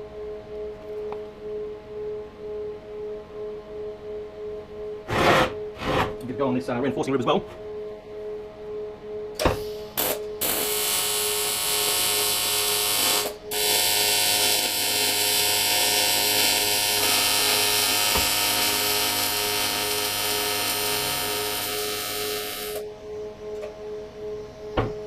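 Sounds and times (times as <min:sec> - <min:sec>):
welding arc buzzing hiss: 0:09.4 - 0:22.9.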